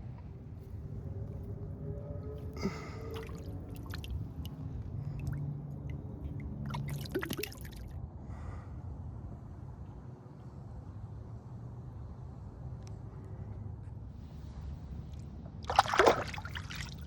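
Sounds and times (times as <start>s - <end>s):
steady low background noise: 0.0s - 17.0s
water splashing and dripping: 3.1s - 4.6s, 6.6s - 7.9s, 15.6s - 17.0s.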